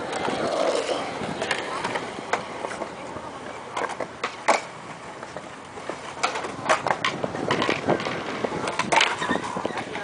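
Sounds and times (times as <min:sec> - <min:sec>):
skateboard wheels rolling on concrete: 0:00.0 - 0:10.0
skateboards clacking on ground: 0:00.0 - 0:10.0.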